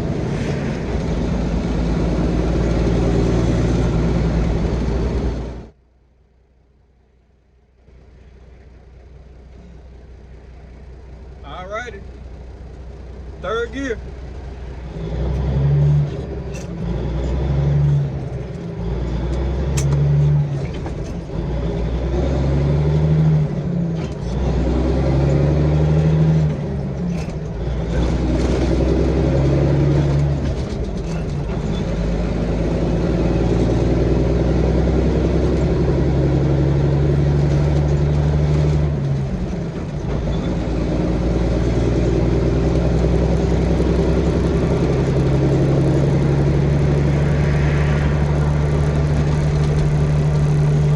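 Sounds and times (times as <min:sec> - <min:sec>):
diesel truck engine accelerating: 0:00.0 - 0:50.9.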